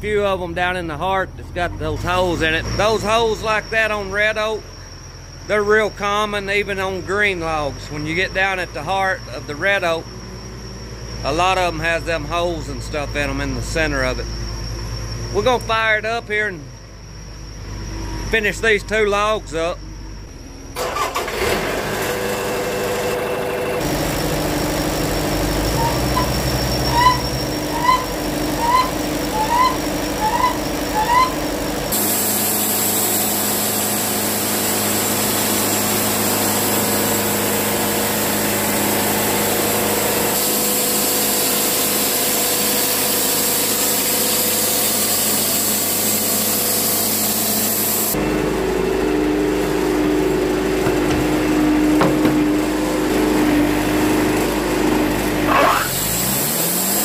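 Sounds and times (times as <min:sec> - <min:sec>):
sawmill engine humming: 0:00.0 - 0:57.0
band saw blade cutting log: 0:23.8 - 0:48.2, 0:54.8 - 0:57.0
short rising squeaks: 0:25.2 - 0:33.0, 0:50.6 - 0:57.0.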